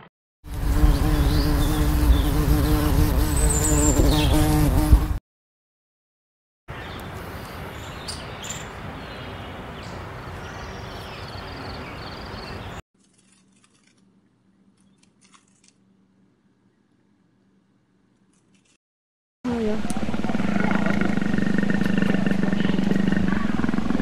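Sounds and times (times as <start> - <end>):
outdoor background noise: 6.7 - 18.8, 19.5 - 24.0.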